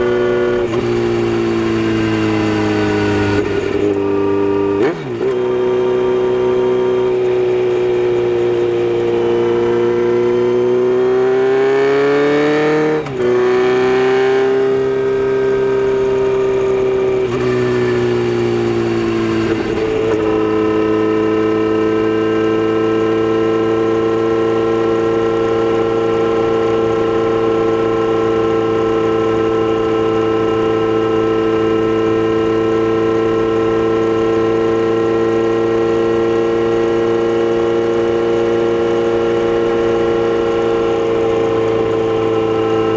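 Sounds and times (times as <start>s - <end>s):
motorcycle engine shifting gears: 0.0s - 42.9s.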